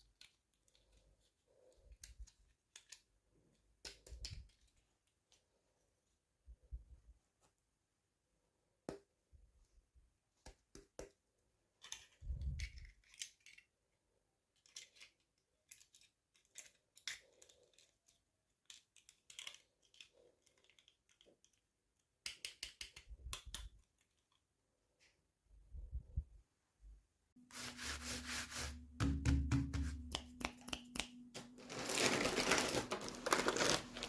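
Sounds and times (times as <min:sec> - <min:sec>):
toy packaging clicks and crinkles: 0:11.8 - 0:13.8, 0:14.5 - 0:24.5, 0:30.3 - 0:34.0.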